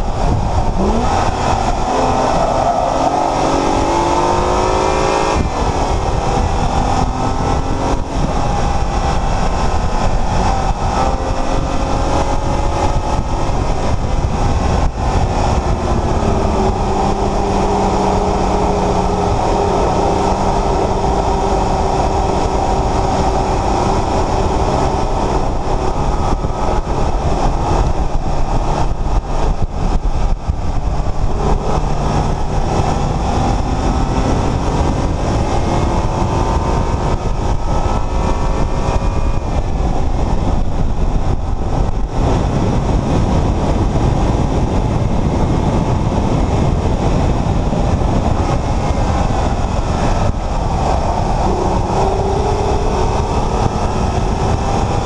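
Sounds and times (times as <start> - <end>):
car engine under load: 0.0 - 55.0
road and wind rush: 0.0 - 55.0.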